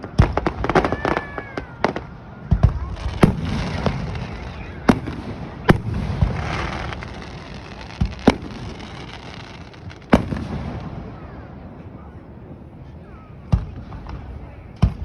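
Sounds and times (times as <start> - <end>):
fireworks crackling: 0.0 - 12.0
fireworks bangs: 0.0 - 12.1.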